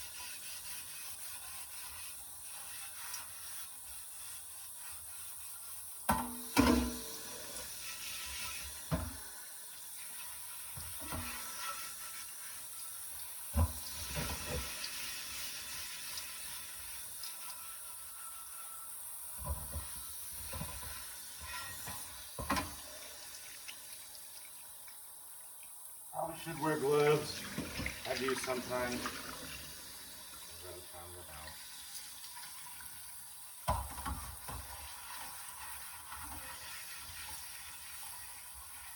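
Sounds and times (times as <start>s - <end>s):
tap water running: 0.0s - 38.9s
heavy pot knocking and clunking: 6.1s - 7.2s.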